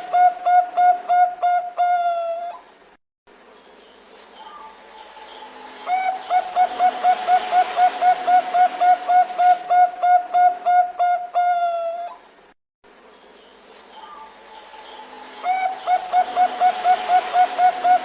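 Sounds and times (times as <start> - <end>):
dove cooing: 0.0 - 2.6, 5.4 - 12.2, 14.0 - 18.0.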